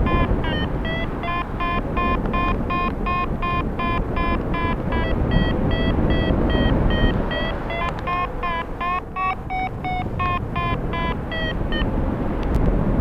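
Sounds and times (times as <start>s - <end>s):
variometer beeping: 0.0s - 12.0s
wind rushing over microphone: 0.0s - 13.0s.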